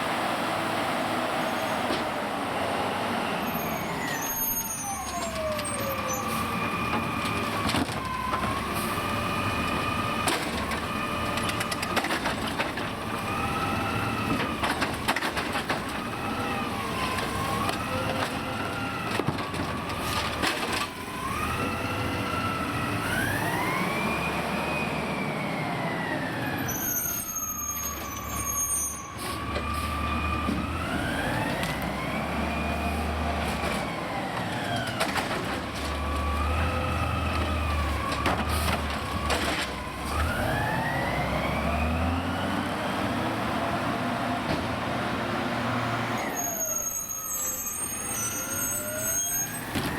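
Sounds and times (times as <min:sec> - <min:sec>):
garbage truck engine revving: 0:29.3 - 0:46.3.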